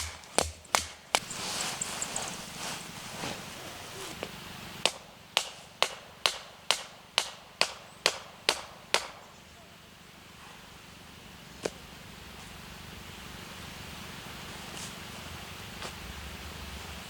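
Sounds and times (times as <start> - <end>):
sharp knocks: 0.0 - 1.3.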